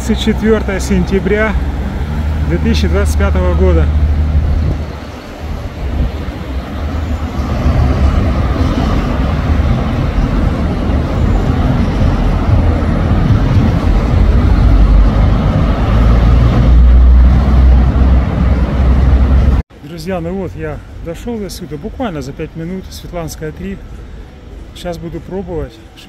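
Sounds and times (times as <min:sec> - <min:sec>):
wind rumbling on microphone: 0:00.0 - 0:19.6
passing traffic: 0:00.0 - 0:26.0.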